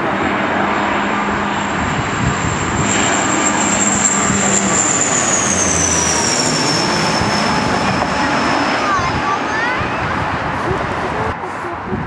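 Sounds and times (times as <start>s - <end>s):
airliner engines roaring past: 0.0s - 12.0s.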